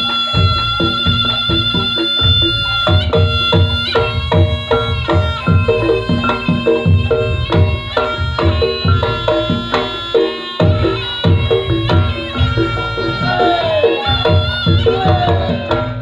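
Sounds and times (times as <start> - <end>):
hand drums steady beat: 0.0 - 16.0.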